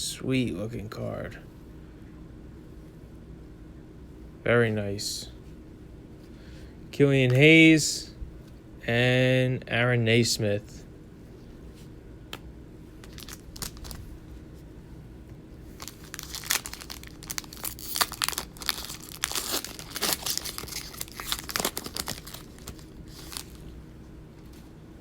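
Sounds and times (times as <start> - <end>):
plastic wrapper tearing and crinkling: 13.0 - 14.0, 15.7 - 23.8.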